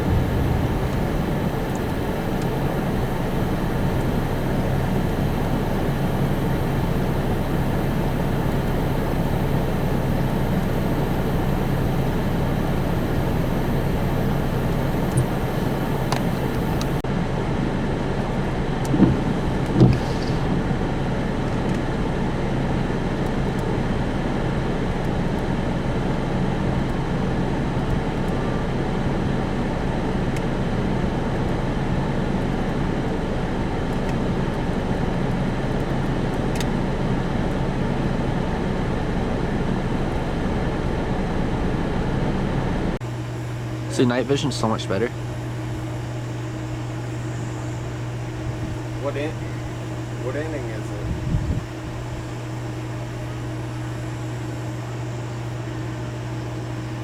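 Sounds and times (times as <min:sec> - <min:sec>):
car bumps: 0:00.0 - 0:04.4, 0:18.9 - 0:20.7
car road noise from cabin: 0:00.0 - 0:17.0, 0:18.8 - 0:20.9.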